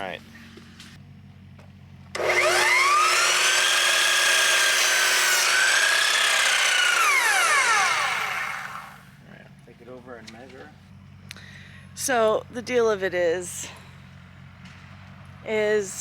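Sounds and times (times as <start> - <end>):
electric power saw cutting wood: 2.1 - 9.2.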